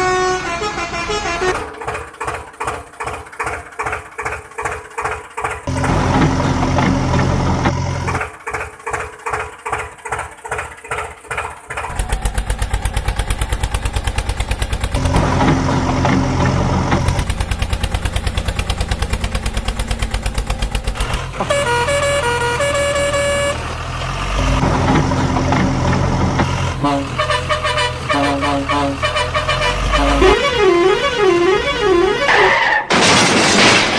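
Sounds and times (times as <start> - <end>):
truck horn blasts: 0.0 - 1.7, 21.1 - 24.6, 26.6 - 32.6
engine chugging: 1.5 - 32.3
horn playing a tune: 21.4 - 23.7, 26.8 - 32.5.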